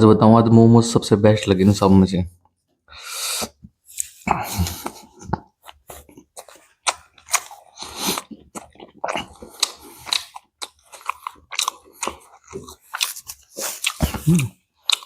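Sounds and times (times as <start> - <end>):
person chewing crunchy food: 3.4 - 15.0.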